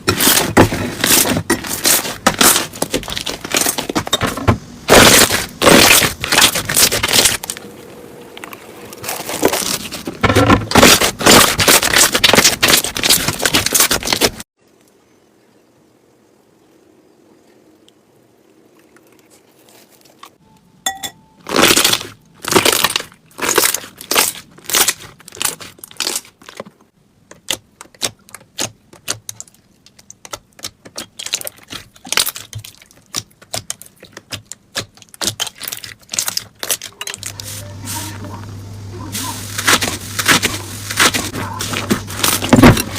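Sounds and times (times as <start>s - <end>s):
slime popping and crackling: 4.9s - 7.6s, 21.4s - 26.6s, 27.4s - 37.1s.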